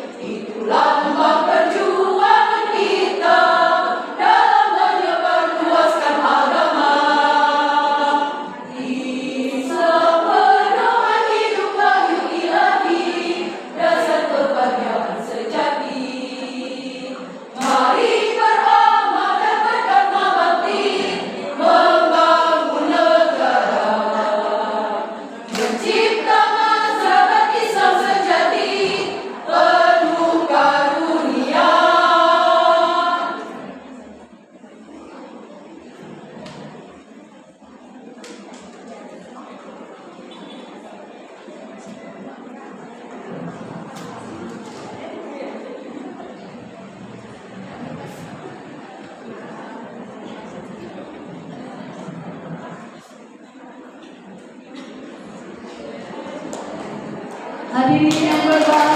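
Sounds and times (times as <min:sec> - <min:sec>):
choir singing in parts: 0:00.0 - 0:34.3, 0:53.9 - 0:58.9.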